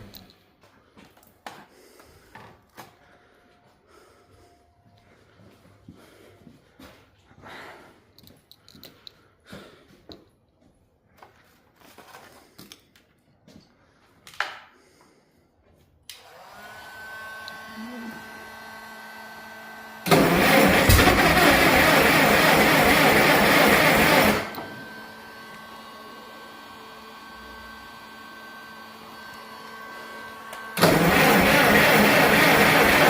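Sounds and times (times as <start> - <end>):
starter motor whirring: 16.1 - 33.0
rough pulsing engine: 17.8 - 28.0, 29.8 - 33.0.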